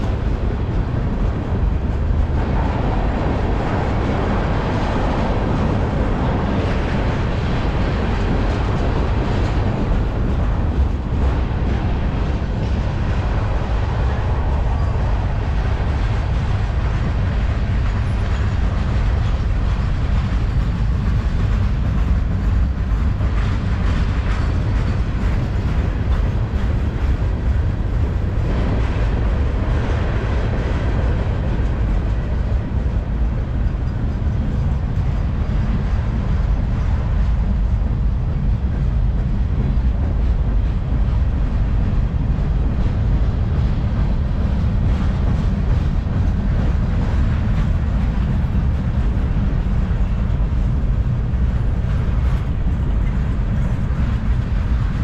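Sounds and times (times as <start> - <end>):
freight train railcars rolling: 0.0 - 55.0.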